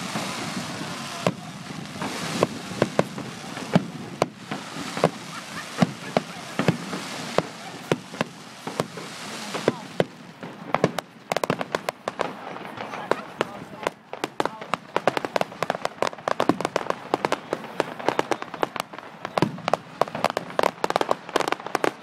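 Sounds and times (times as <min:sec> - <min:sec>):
steady hiss: 0:00.0 - 0:12.4
fireworks bangs and cracks: 0:00.0 - 0:22.0
fireworks crackling: 0:00.0 - 0:22.0.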